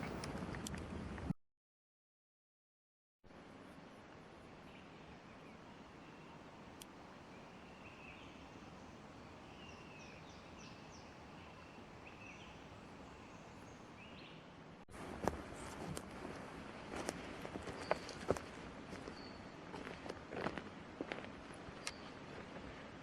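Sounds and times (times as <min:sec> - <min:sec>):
steady low hiss: 0:03.3 - 0:23.0
small birds chirping: 0:04.6 - 0:14.5, 0:17.6 - 0:19.9, 0:21.7 - 0:22.2.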